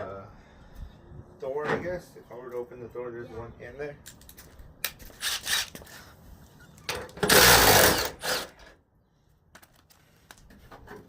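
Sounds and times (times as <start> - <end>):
power tool running in bursts: 7.3 - 8.5.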